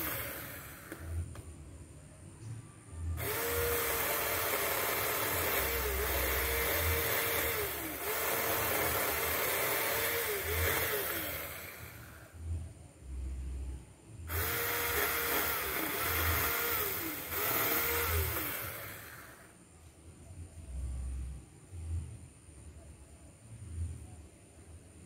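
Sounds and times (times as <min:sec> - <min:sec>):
electric chainsaw cutting wood: 0:00.0 - 0:01.4, 0:03.2 - 0:12.4, 0:14.3 - 0:19.5.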